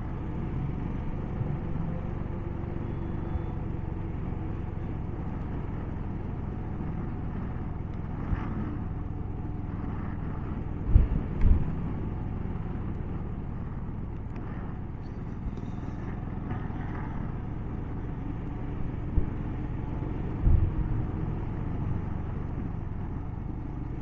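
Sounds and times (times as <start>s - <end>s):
motorcycle engine running: 0.0s - 24.0s
dull low thumps: 10.2s - 13.4s, 18.7s - 19.6s.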